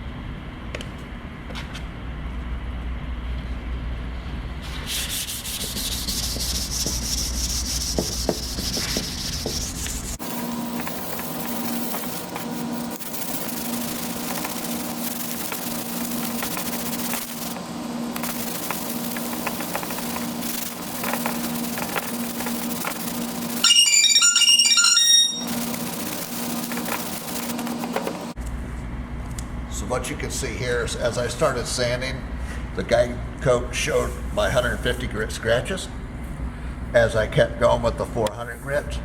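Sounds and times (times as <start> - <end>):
sandpaper rubbing by hand: 4.7 - 17.6, 18.2 - 23.6.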